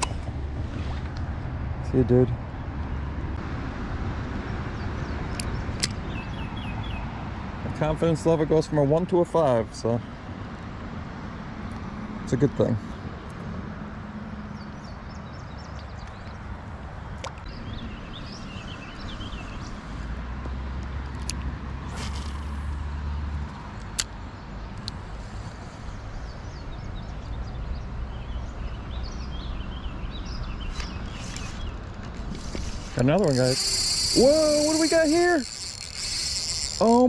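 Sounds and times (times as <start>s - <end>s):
small birds chirping: 4.8s - 7.2s, 14.4s - 20.1s, 23.6s - 37.0s
sharp ticks: 32.4s - 37.0s.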